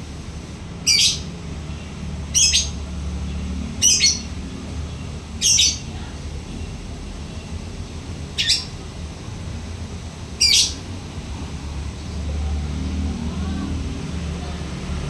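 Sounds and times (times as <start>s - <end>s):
low background rumble: 0.0s - 0.6s.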